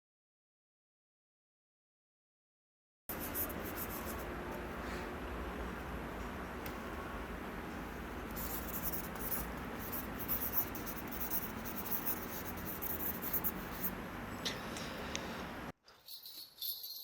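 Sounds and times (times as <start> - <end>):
pen scratching on paper: 3.1 - 4.3, 8.3 - 14.0.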